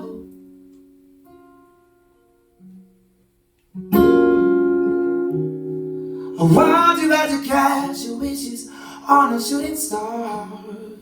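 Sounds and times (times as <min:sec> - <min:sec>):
person singing: 0:00.0 - 0:00.4, 0:06.3 - 0:11.0
acoustic guitar chords: 0:00.0 - 0:11.0.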